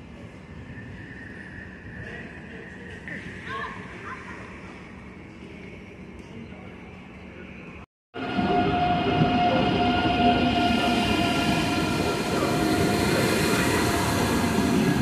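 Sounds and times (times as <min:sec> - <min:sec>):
electric train whine: 0:00.0 - 0:03.0, 0:06.8 - 0:15.0
train rolling rumble: 0:08.2 - 0:15.0.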